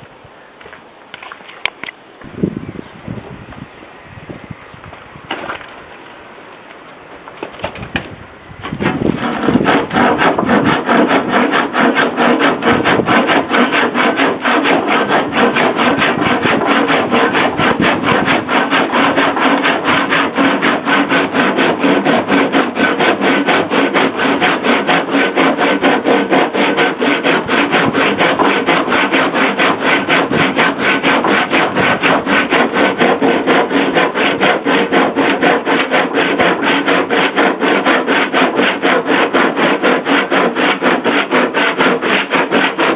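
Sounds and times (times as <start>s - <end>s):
hand tool rubbing on wood: 8.6s - 42.9s.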